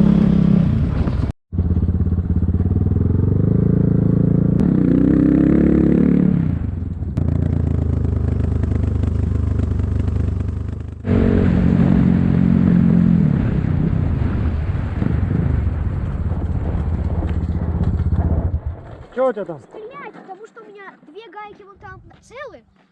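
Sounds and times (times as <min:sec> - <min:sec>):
motorcycle engine under load: 0:00.0 - 0:14.3, 0:15.0 - 0:19.2.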